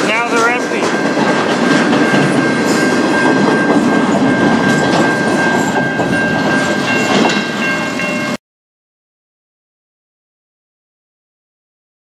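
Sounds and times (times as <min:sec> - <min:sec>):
steady high ring: 0:00.0 - 0:08.4
wheels clattering over rail joints: 0:00.0 - 0:08.4.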